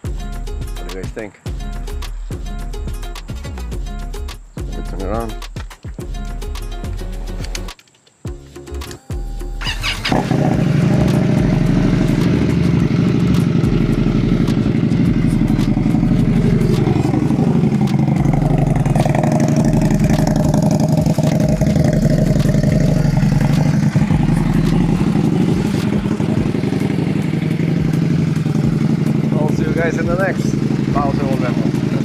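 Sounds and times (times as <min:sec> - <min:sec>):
motorcycle engine starting and idling: 0:09.2 - 0:32.0.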